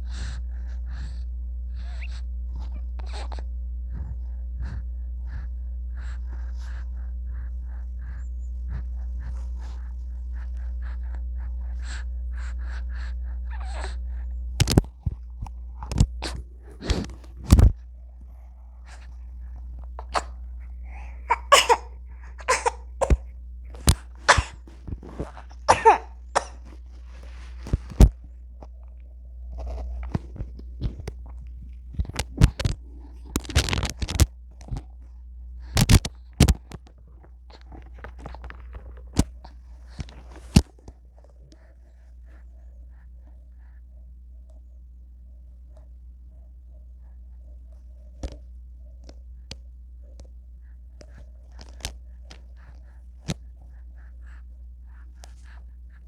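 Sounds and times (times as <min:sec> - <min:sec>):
baby coughing and sneezing: 0:20.1 - 0:20.4, 0:21.2 - 0:23.3, 0:23.9 - 0:24.6, 0:25.7 - 0:26.7
baby voice sounds: 0:21.2 - 0:23.2, 0:25.7 - 0:26.5.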